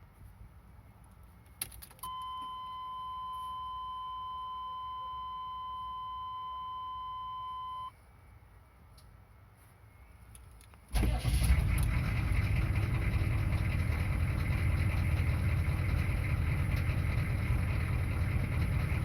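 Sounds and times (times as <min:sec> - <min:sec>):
dashboard warning tone: 0:02.0 - 0:08.0.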